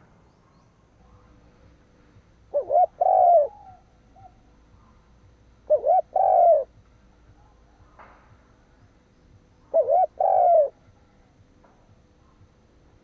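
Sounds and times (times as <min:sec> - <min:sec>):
dove cooing: 0:02.4 - 0:06.8, 0:09.6 - 0:11.3.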